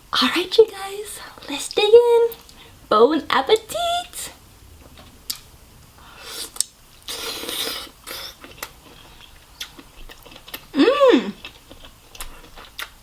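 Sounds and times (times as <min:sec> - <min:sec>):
wet bites and chewing: 0:07.6 - 0:10.8, 0:11.4 - 0:13.0.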